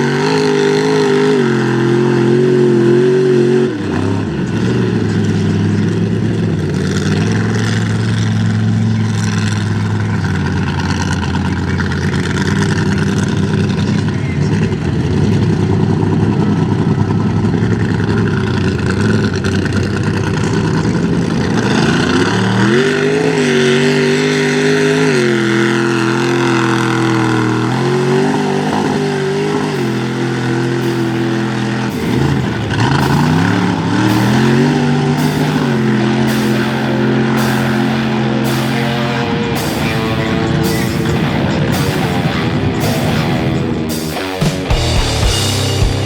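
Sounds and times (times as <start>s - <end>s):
truck engine revving: 0.0s - 46.0s
rock music with steady beat: 28.6s - 46.0s.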